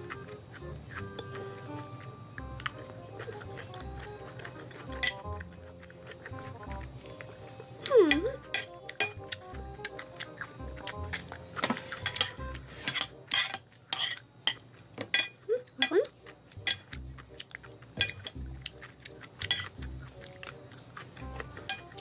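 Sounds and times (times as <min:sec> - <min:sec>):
chewing: 0:00.0 - 0:22.0
metal spoon scraping ceramic plate: 0:04.8 - 0:06.4, 0:08.1 - 0:09.2, 0:11.6 - 0:15.9, 0:16.6 - 0:16.9, 0:19.4 - 0:19.8, 0:21.6 - 0:22.0.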